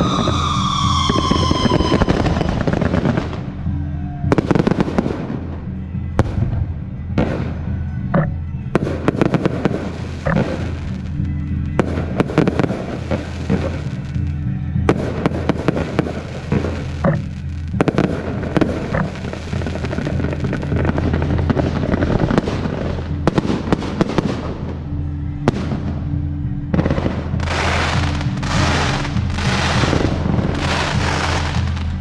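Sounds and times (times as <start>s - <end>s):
hissing firework bursts: 0.0s - 3.4s, 11.8s - 14.2s, 27.4s - 32.0s
fireworks cracks and bangs: 0.0s - 7.8s, 8.7s - 24.8s, 26.7s - 32.0s.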